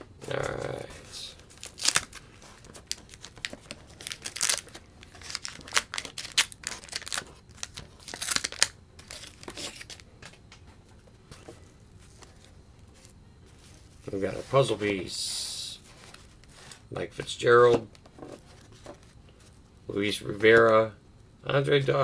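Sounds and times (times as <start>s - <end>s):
wax paper wrapper tearing: 0.3s - 10.1s
wrapper crinkling: 0.3s - 10.1s.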